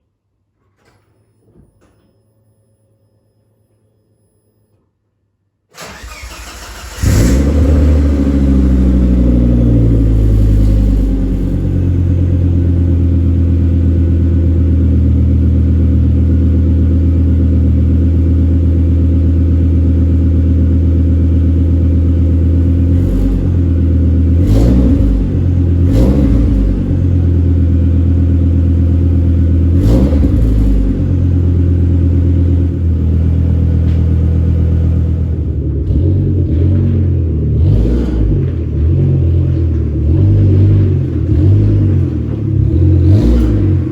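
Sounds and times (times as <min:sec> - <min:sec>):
car engine revving: 0:05.8 - 0:15.8, 0:21.7 - 0:43.9
car engine idling: 0:05.8 - 0:43.9.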